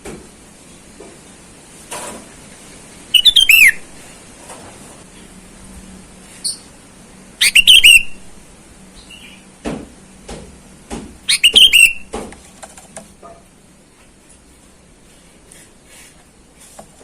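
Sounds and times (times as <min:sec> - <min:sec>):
bird chirping: 0:03.1 - 0:03.8, 0:06.4 - 0:06.7, 0:07.4 - 0:08.2, 0:08.9 - 0:09.5, 0:11.3 - 0:12.1.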